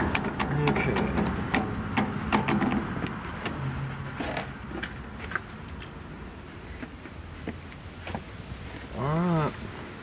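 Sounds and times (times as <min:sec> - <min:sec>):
metal tools clinking: 0:04.2 - 0:06.1.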